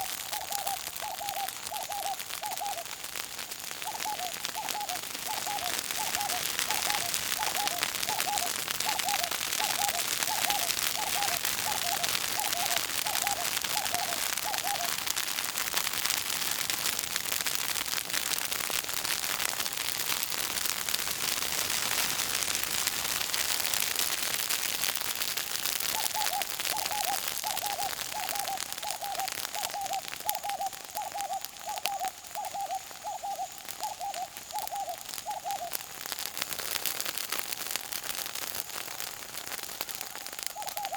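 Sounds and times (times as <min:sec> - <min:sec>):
bird hooting: 0:00.0 - 0:02.9, 0:03.8 - 0:15.0, 0:26.0 - 0:35.8, 0:40.6 - 0:40.9
bush fire crackling: 0:00.0 - 0:40.9.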